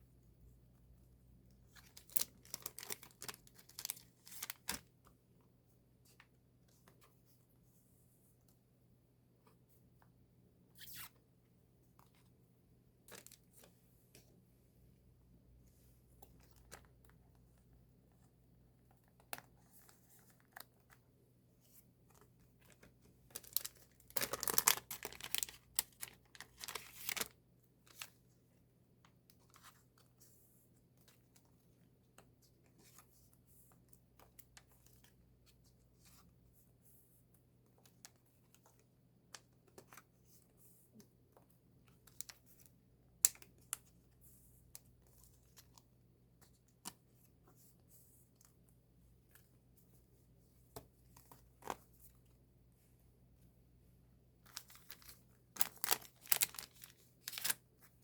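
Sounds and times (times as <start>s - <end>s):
packaging crinkling and tearing: 1.8s - 4.8s, 23.3s - 27.3s, 54.5s - 57.6s.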